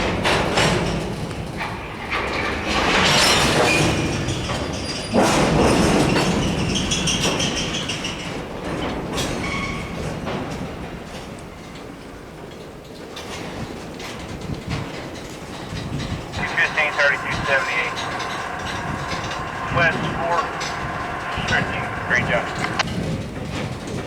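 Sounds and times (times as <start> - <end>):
train wheels clattering over rails: 0.0 - 24.0
high wheel squeal: 15.6 - 22.8.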